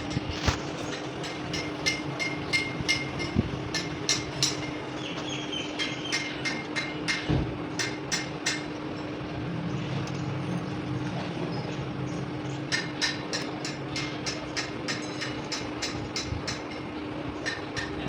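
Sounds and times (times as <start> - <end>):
hammer tapping metal: 0.9 - 4.8, 5.8 - 8.7, 12.7 - 18.0.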